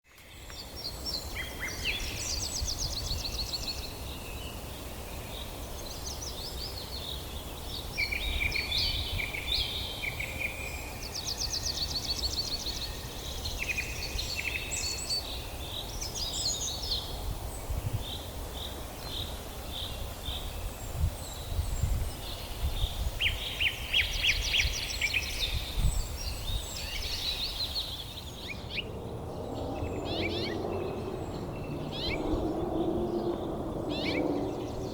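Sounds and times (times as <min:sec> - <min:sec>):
birds chirping and singing: 0:21.2 - 0:34.9.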